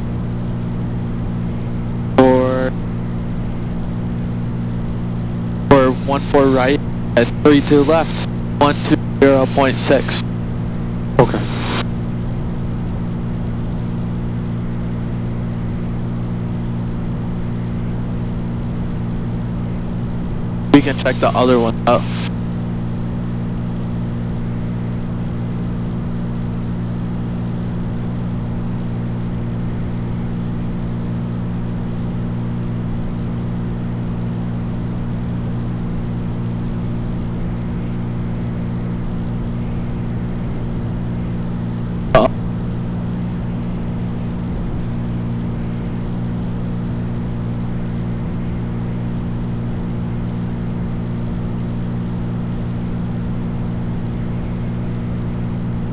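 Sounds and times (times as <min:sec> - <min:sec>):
plane engine droning in cabin: 0:00.0 - 0:55.9.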